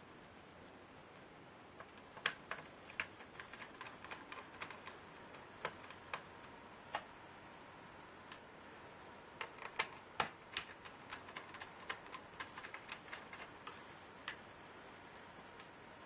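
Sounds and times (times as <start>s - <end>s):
laptop parts clicking and tapping: 1.8s - 7.1s, 9.4s - 14.4s.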